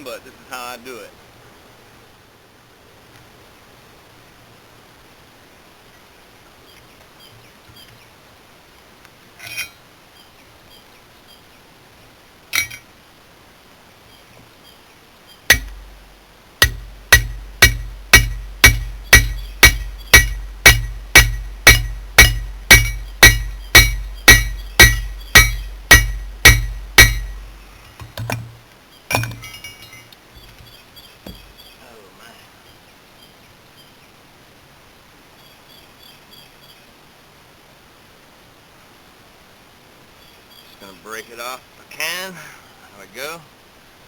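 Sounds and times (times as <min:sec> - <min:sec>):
hammer blows on an anvil: 0:12.6 - 0:12.8, 0:15.5 - 0:16.0, 0:16.6 - 0:30.1.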